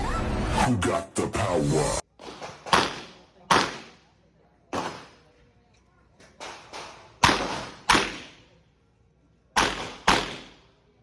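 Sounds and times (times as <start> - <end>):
gunshot: 2.2 - 4.0, 4.8 - 5.2, 6.8 - 8.4, 9.6 - 10.6.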